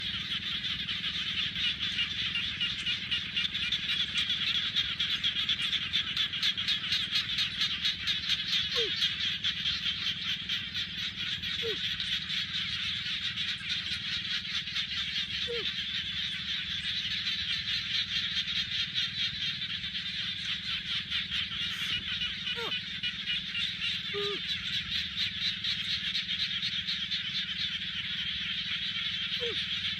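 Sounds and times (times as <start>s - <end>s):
frogs trilling: 0.0s - 29.9s
low steady hum: 0.0s - 29.9s
short falling frog calls: 7.5s - 24.6s, 29.2s - 29.8s.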